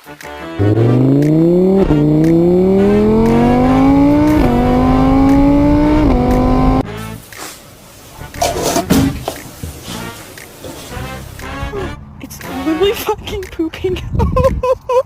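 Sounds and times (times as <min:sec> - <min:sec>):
car engine accelerating hard: 0:00.5 - 0:06.8.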